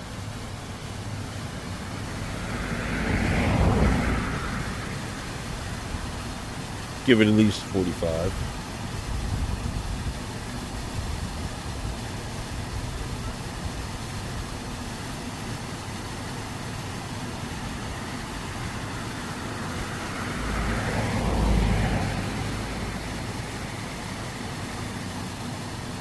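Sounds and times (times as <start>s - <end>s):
road traffic: 0.0s - 26.0s
vehicle driving past: 1.6s - 6.2s, 18.5s - 24.7s.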